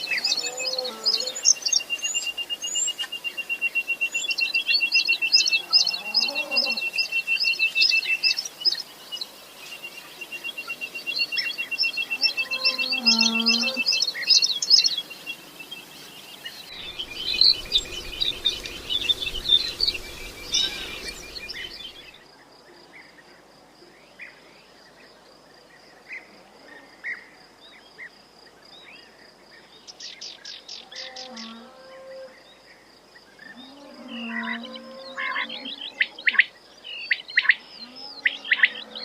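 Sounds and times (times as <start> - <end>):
pulsing high insect trill: 16.7 - 22.2
wind rumble: 16.7 - 22.2
quail chirping and calling: 16.8 - 22.1.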